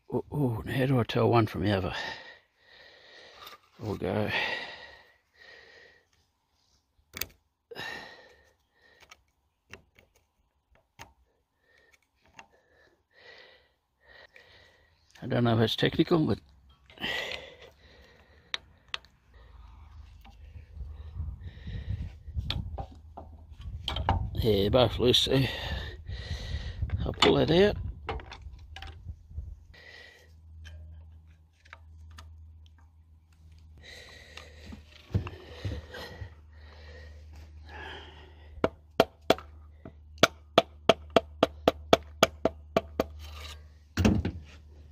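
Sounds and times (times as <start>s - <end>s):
metallic clicks and taps: 18.5s - 19.2s
metallic clicks and knocks: 22.4s - 24.4s.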